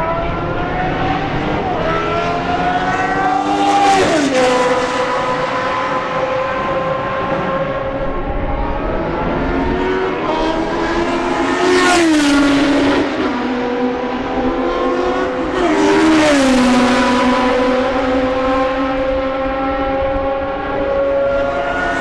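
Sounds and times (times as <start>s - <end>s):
racing car engines passing: 0.0s - 22.0s.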